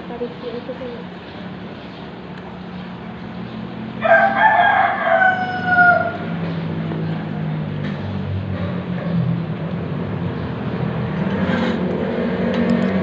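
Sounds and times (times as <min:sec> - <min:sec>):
rooster crowing: 0:04.0 - 0:06.4.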